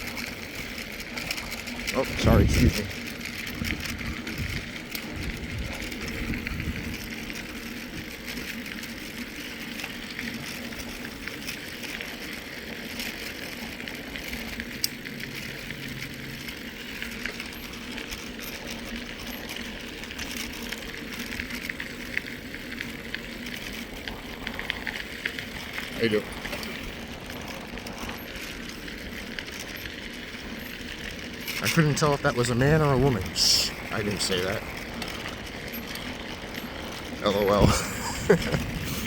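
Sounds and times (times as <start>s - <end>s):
wind rumbling on microphone: 0.0s - 8.4s, 23.0s - 39.0s
bike tyres rolling on trail: 0.0s - 39.0s.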